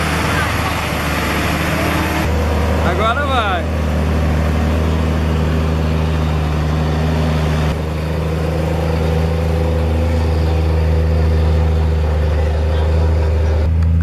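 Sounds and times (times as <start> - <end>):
truck engine droning: 0.0 - 14.0.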